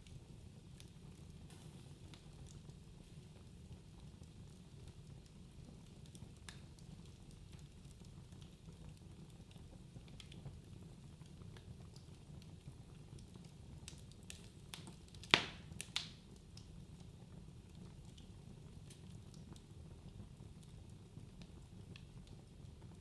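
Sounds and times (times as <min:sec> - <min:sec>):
fire crackling: 0:00.0 - 0:23.0
wood fire popping: 0:00.0 - 0:23.0.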